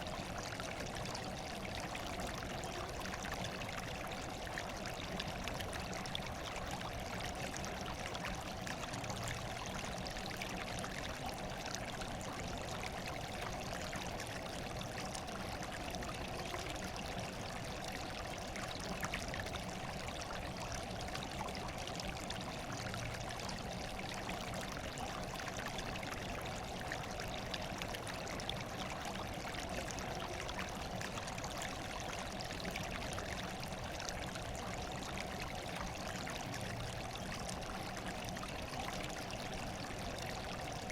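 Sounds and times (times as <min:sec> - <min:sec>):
running water: 0:00.0 - 0:40.9.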